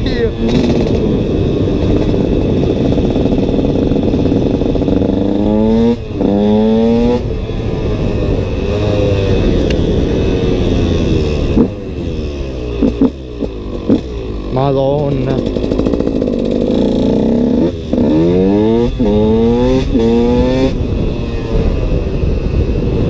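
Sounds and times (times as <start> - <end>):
two-stroke engine revving hard: 0.1 - 7.3, 10.6 - 20.8.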